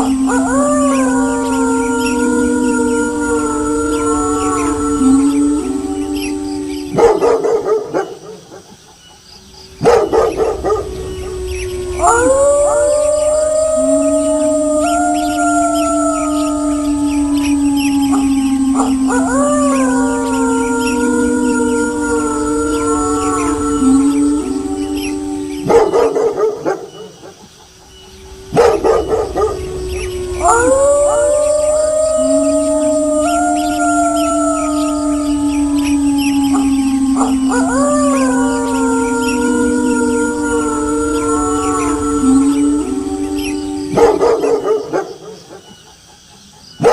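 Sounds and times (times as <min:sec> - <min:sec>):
wolves howling: 0:00.0 - 0:08.7, 0:09.4 - 0:46.2
dog barking: 0:07.0 - 0:08.7, 0:09.8 - 0:10.8.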